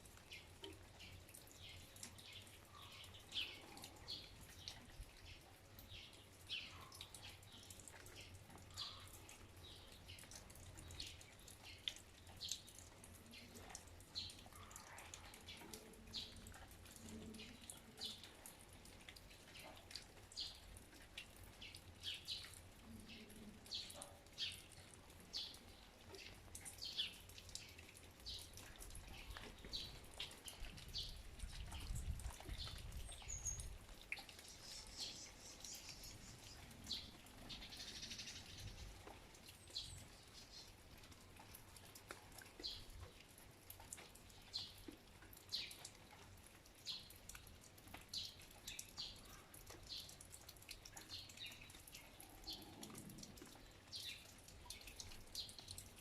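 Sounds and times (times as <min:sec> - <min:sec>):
water dripping: 0:00.0 - 0:56.0
small birds calling: 0:00.3 - 0:11.8, 0:21.6 - 0:40.8.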